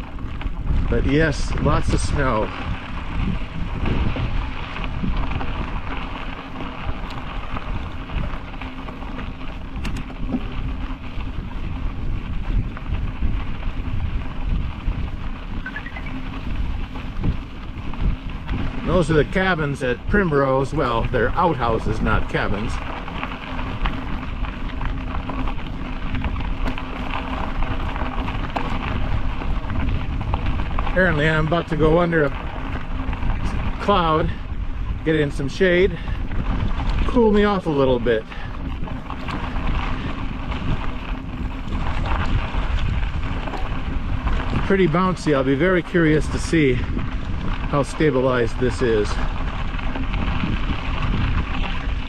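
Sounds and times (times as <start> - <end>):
bicycle ticks: 0.0 - 52.0
wind buffeting microphone: 0.0 - 52.0.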